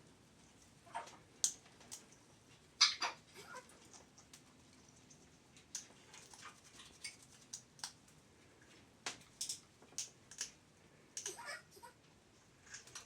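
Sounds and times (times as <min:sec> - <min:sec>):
parrots chirping and clicking: 0:00.9 - 0:02.2, 0:02.8 - 0:08.2, 0:09.1 - 0:10.6, 0:11.2 - 0:11.6.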